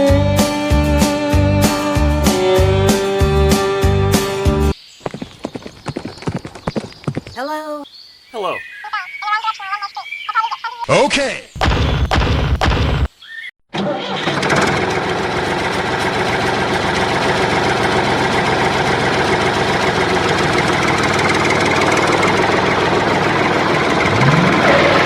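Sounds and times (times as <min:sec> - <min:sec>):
engine starting and running: 0:13.7 - 0:25.0.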